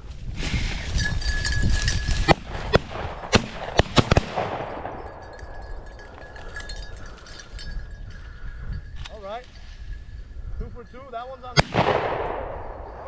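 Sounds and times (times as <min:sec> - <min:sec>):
shotgun shots: 0:02.3 - 0:05.0, 0:11.6 - 0:13.0.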